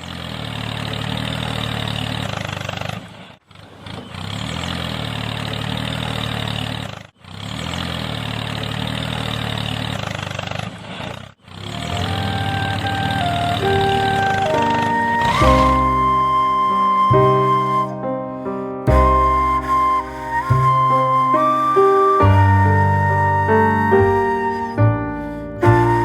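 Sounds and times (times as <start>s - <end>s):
low engine-like running: 0.0s - 17.8s.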